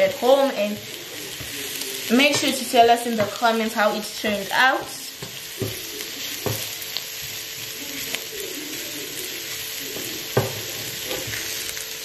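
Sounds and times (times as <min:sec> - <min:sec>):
mushrooms sizzling in butter: 0:00.0 - 0:12.0
wooden spoon knocking on pan: 0:03.1 - 0:03.4, 0:04.8 - 0:06.7, 0:10.0 - 0:11.4.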